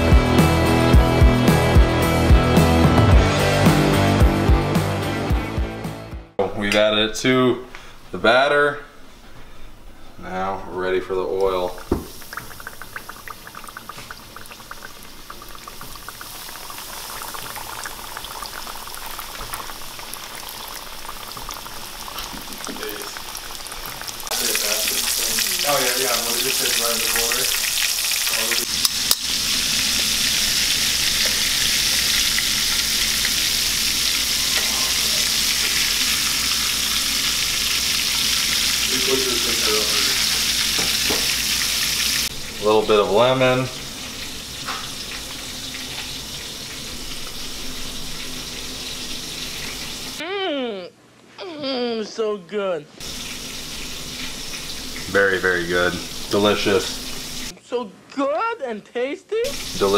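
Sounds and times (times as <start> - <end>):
fish deep-frying in oil: 11.5 - 50.2, 53.0 - 57.5, 59.4 - 59.9.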